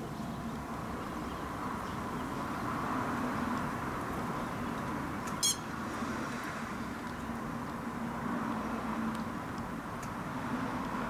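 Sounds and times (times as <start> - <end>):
outdoor background noise: 0.0 - 11.0
high-pitched bird chirp: 5.4 - 5.7.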